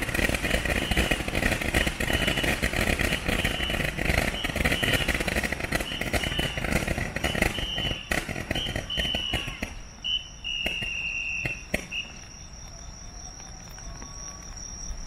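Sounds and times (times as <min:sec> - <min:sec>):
fireworks crackling and popping: 0:00.0 - 0:15.0
fireworks whistling: 0:00.0 - 0:15.0
insects trilling: 0:00.0 - 0:15.0.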